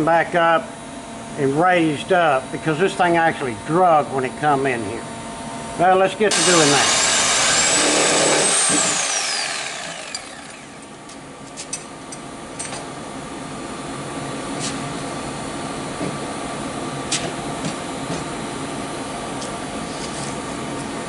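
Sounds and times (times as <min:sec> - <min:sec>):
power tool spinning down: 0:06.3 - 0:10.9.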